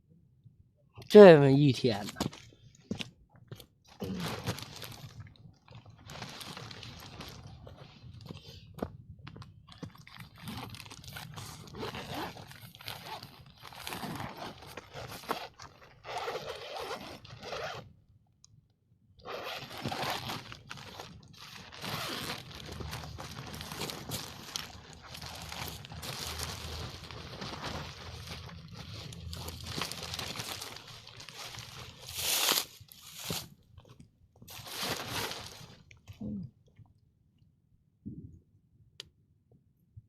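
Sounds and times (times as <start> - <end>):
packaging crinkling and tearing: 3.9 - 7.8, 9.4 - 17.7, 19.3 - 33.9, 34.5 - 36.0.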